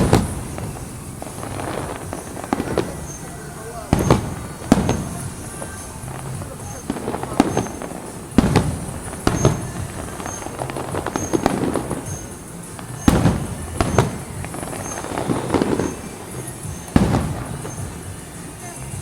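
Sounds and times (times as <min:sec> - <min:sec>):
fireworks booming: 0:00.0 - 0:19.0
fireworks popping and crackling: 0:00.0 - 0:19.0.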